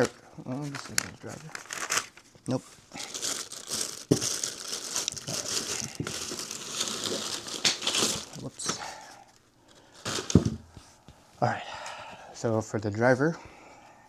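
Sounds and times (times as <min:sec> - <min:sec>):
packaging wrap crinkling: 0:00.0 - 0:10.7.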